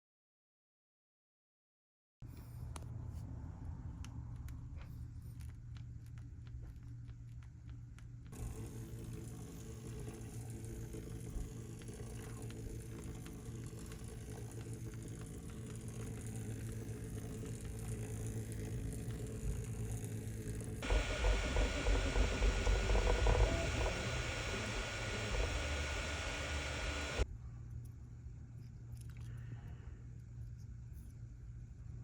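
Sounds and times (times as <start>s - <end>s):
vibration motor buzzing: 8.4s - 27.2s.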